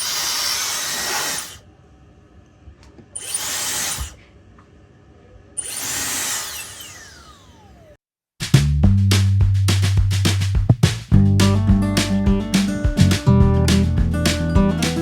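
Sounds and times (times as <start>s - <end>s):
hair dryer blowing air: 0.0s - 1.6s, 3.2s - 4.2s, 5.6s - 7.8s.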